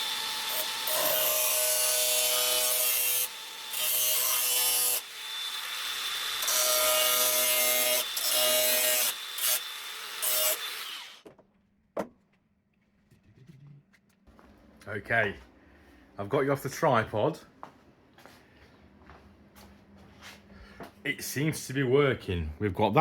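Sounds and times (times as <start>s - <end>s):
power tool grinding steel: 0.0s - 11.2s.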